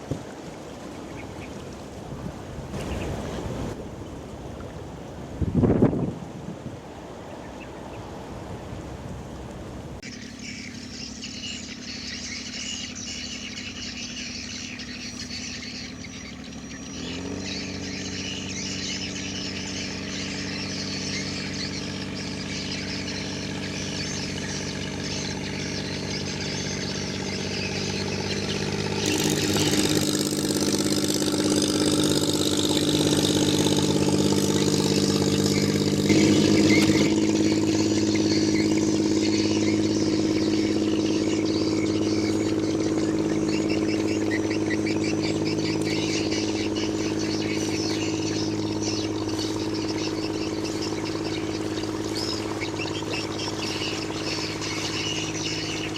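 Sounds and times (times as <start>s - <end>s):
engine running steadily: 0.0s - 55.9s.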